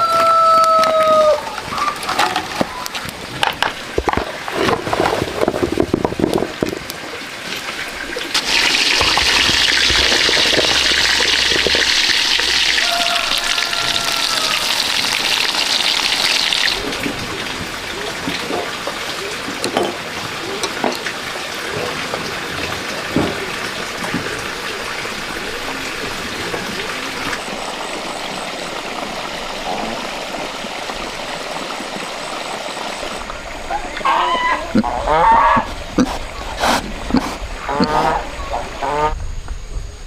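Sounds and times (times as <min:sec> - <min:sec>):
water pouring: 0:00.0 - 0:37.1
knocks and clatters: 0:08.4 - 0:12.6.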